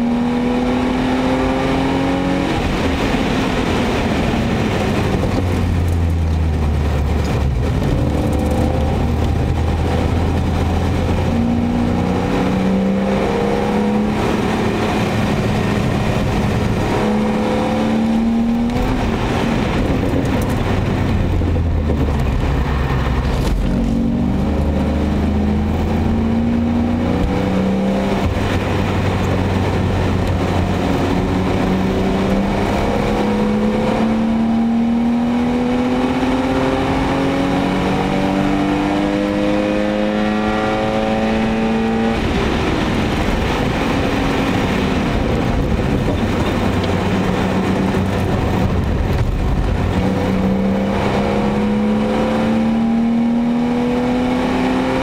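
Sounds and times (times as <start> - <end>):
car engine pulling hard: 0.0 - 55.0
tyre and road noise: 0.0 - 55.0.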